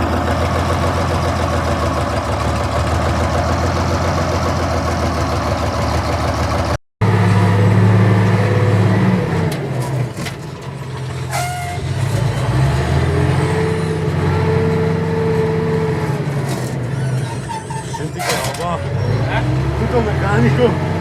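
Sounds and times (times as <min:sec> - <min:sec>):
tractor diesel engine under load: 0:00.0 - 0:21.0
high squeak: 0:11.3 - 0:12.0, 0:16.6 - 0:19.6.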